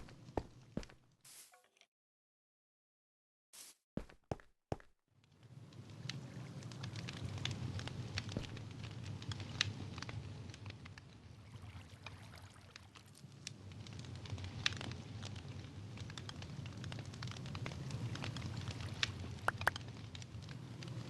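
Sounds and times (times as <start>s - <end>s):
low fire rumble: 0.0s - 0.9s, 5.1s - 21.0s
campfire crackling and popping: 5.2s - 21.0s.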